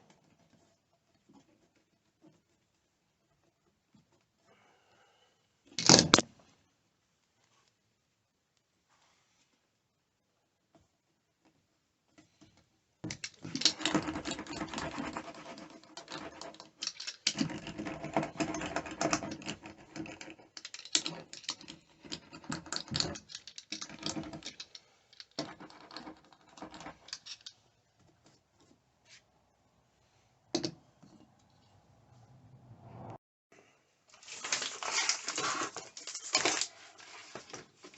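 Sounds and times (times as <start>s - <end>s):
rapid clicking and crackling: 13.1s - 27.6s.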